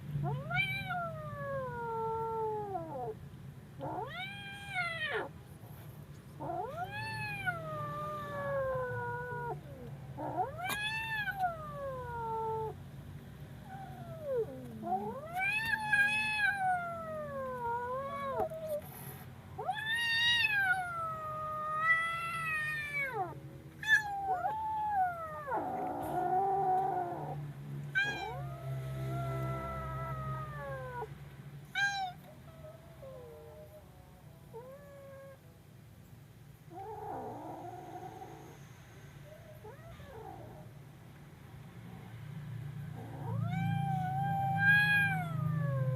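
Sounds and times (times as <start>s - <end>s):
kitten meowing: 3.8s - 5.3s, 6.4s - 12.8s, 13.7s - 18.8s, 28.0s - 31.1s, 31.8s - 33.4s, 43.1s - 45.9s.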